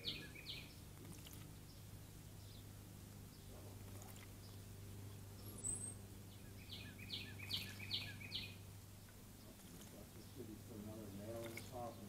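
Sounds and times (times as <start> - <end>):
bird singing sharp notes: 0.0 - 0.8, 5.4 - 8.6
faint water splashing: 0.0 - 6.0, 6.6 - 12.0.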